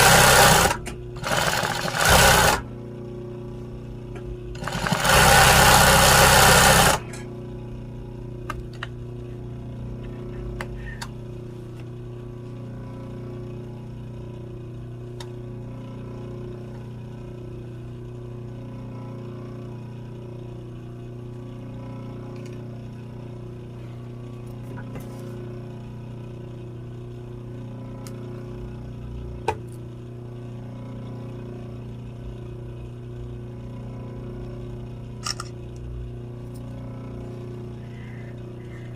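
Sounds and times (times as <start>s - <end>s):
sewing machine stitching: 0.0s - 2.6s, 4.6s - 7.1s
steady low hum: 0.0s - 38.9s.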